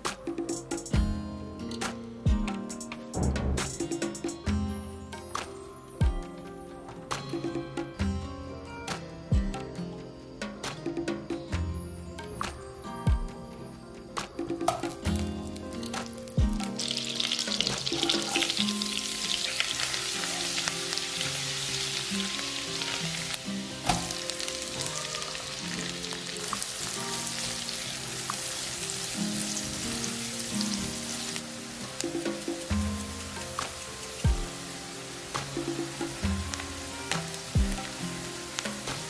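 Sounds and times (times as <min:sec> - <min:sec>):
background music: 0:00.0 - 0:39.0
onion frying: 0:14.7 - 0:39.0
butter and oil sizzling: 0:14.8 - 0:39.0.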